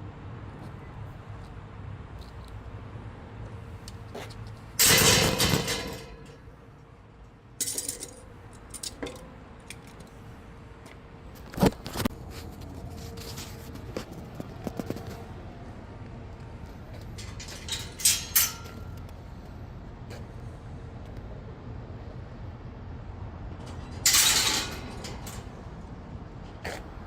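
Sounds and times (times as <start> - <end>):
metal jangling and rattling: 4.8 - 6.5, 7.6 - 10.2, 17.0 - 19.0, 23.6 - 25.7.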